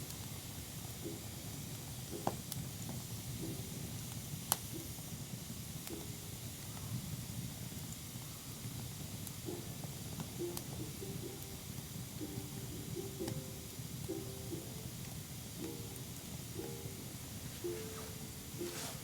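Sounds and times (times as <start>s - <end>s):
fire crackling pops: 0.0s - 6.9s
campfire hissing: 0.0s - 19.0s.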